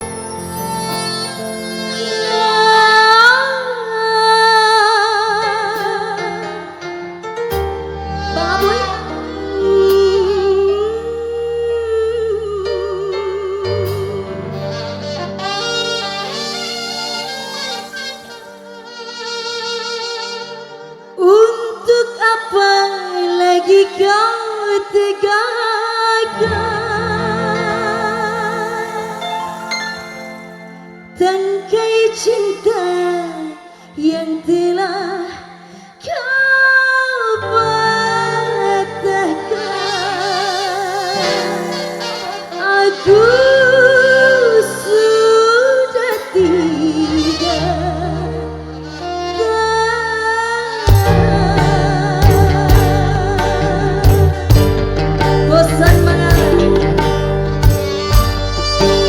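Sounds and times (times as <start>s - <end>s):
melodic lead with vibrato: 0.0s - 21.8s, 26.2s - 32.8s, 37.4s - 59.0s
backing instruments: 50.9s - 59.0s
bass guitar: 50.9s - 59.0s
drums: 50.9s - 59.0s.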